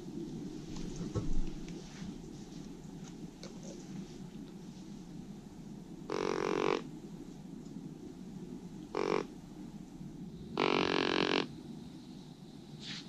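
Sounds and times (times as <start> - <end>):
deer call blown: 6.1 - 6.9, 8.9 - 9.3, 10.6 - 11.5.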